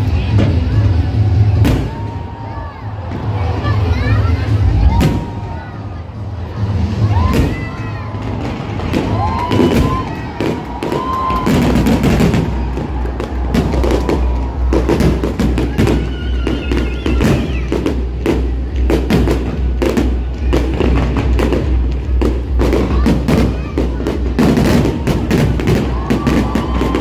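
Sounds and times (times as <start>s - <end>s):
fireworks bursting: 0.0s - 27.0s
music with steady bass beat: 8.4s - 27.0s.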